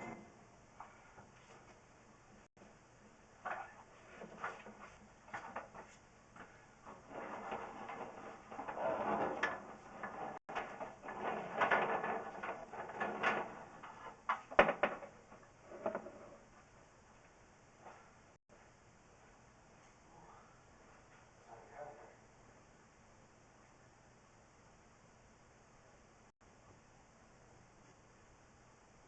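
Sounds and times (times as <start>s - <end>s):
cable scraping and knocking in pipe: 3.5s - 16.4s.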